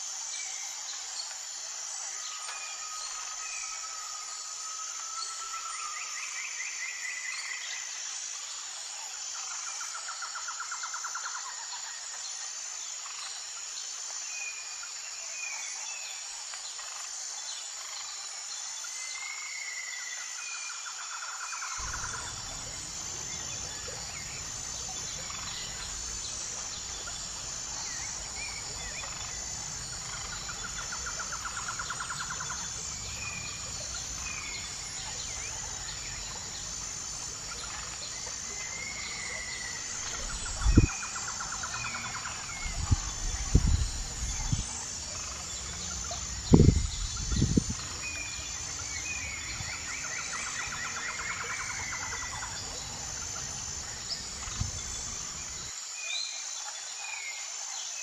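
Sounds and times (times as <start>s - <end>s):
background hiss: 21.8s - 55.7s
birds chirping: 21.8s - 55.7s.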